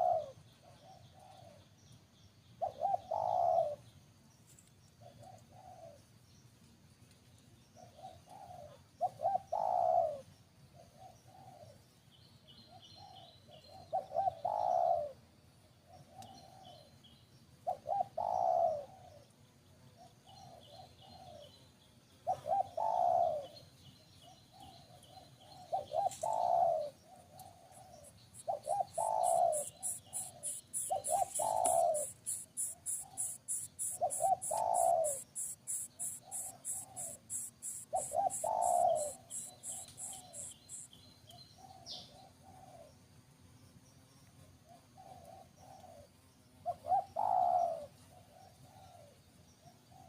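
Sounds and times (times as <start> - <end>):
bird cooing: 0.0 - 1.7, 2.6 - 3.8, 5.0 - 6.0, 7.8 - 11.8, 12.8 - 15.2, 16.0 - 16.8, 17.7 - 19.3, 20.0 - 21.5, 22.3 - 23.6, 24.5 - 40.9, 41.6 - 42.9, 44.7 - 50.0
faint high chirps: 25.0 - 41.6
rapid high ticking: 29.2 - 40.9.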